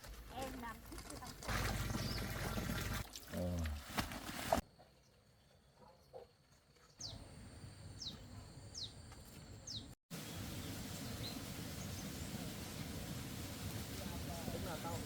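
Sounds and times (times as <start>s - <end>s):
outdoor background noise: 0.0s - 15.0s
bird chirping: 5.0s - 12.2s.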